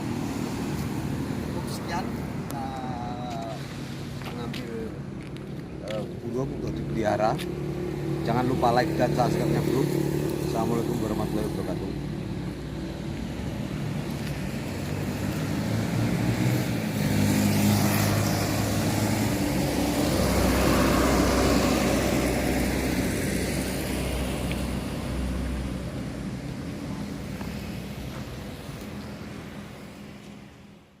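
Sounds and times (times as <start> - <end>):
vehicle engine passing: 6.6 - 30.2.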